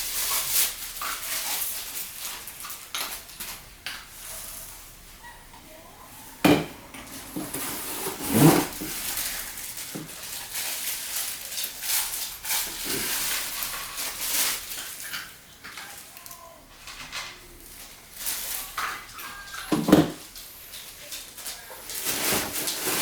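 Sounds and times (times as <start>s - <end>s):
packaging rustling and crackling: 0.0s - 4.8s, 7.0s - 23.0s
plastic parts clattering: 7.0s - 16.1s, 16.8s - 23.0s.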